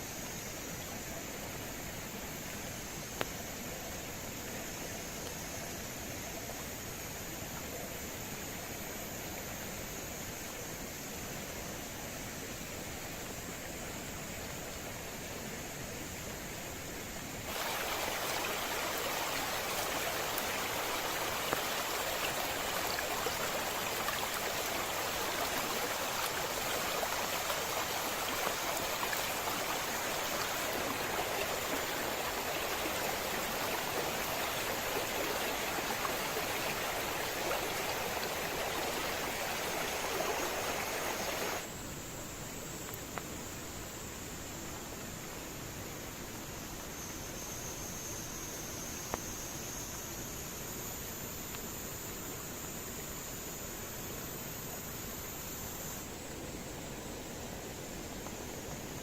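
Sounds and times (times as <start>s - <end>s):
water rushing: 17.2s - 41.7s.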